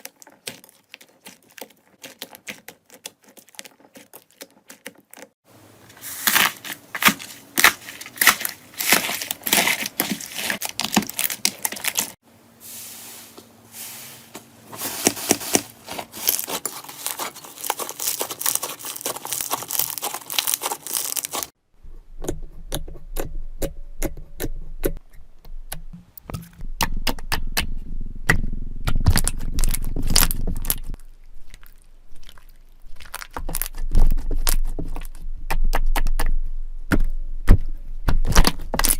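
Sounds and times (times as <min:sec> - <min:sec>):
slime squelching: 0:00.0 - 0:13.0, 0:13.7 - 0:21.6, 0:28.8 - 0:38.9
slime crackling and popping: 0:16.1 - 0:21.6, 0:28.9 - 0:36.4.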